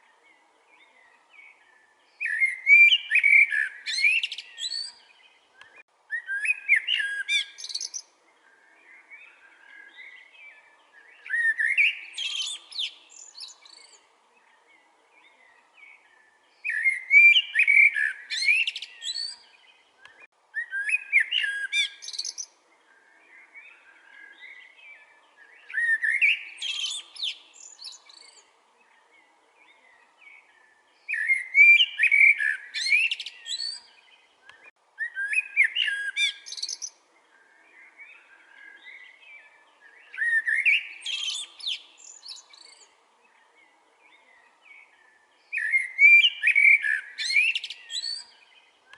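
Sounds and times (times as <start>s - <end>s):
blackbird singing: 0.0s - 48.9s
faint bird chirping: 0.0s - 48.9s.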